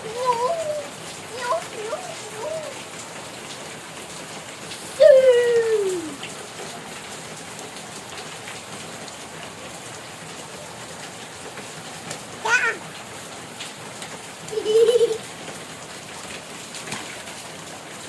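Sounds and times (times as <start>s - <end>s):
rain splashing: 0.0s - 18.0s
drawn-out falling call: 4.8s - 6.3s.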